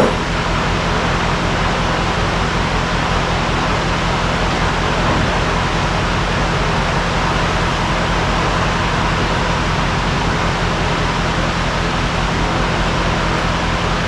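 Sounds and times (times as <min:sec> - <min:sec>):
loud constant rushing noise: 0:00.0 - 0:14.0
vehicle engine running: 0:00.0 - 0:14.0.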